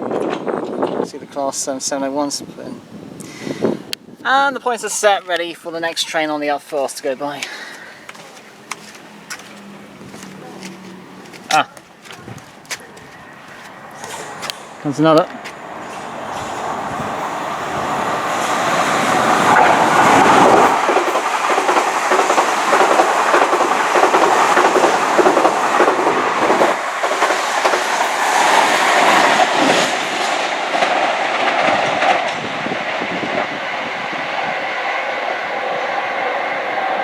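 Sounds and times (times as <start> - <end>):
train wheels clattering over rails: 7.7 - 35.5.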